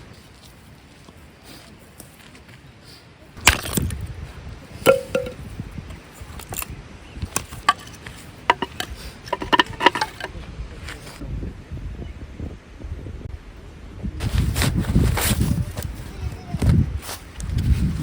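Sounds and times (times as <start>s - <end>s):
sharp knocks and clinks: 4.9s - 5.4s, 7.6s - 10.3s.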